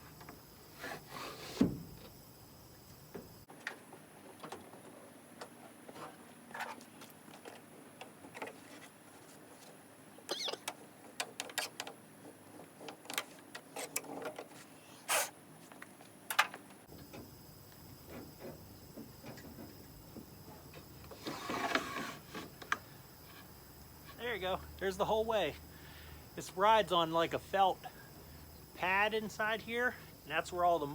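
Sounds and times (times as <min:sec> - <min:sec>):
sliding glass window scraping: 0:21.2 - 0:22.5.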